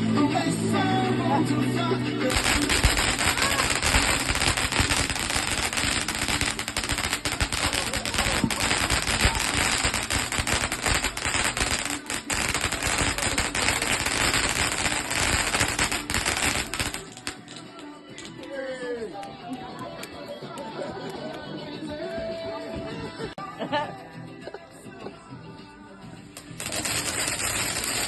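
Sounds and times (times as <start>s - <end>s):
fireworks crackling: 2.2s - 18.3s, 26.3s - 28.0s.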